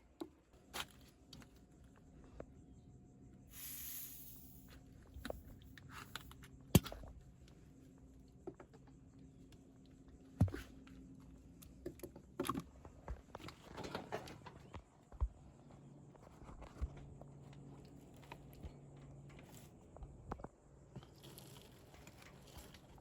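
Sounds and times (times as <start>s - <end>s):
faint steady hum: 0.0s - 23.0s
short hiss: 3.5s - 5.5s.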